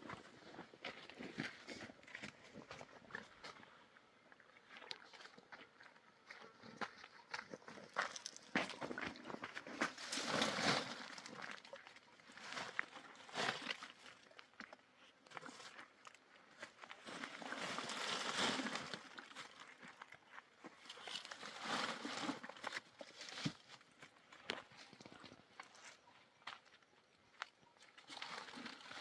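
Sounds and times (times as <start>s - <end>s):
rustling and crunching: 7.5s - 14.3s, 16.6s - 26.6s, 27.6s - 29.0s.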